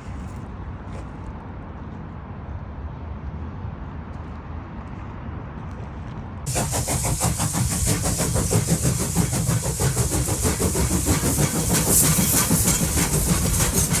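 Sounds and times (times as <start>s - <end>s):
train wheels rumbling on rails: 6.5s - 14.0s.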